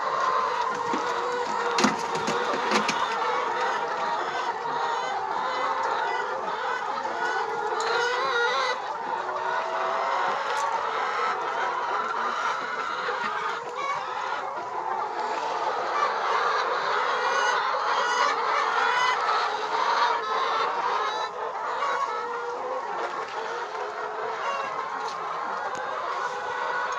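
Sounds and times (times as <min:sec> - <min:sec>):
hens clucking: 0:00.0 - 0:26.9.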